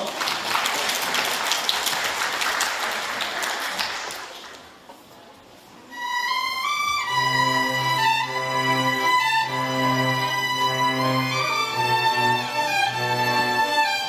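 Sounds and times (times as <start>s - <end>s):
audience applause: 0.0s - 4.7s
string ensemble playing slow melody: 5.9s - 14.0s.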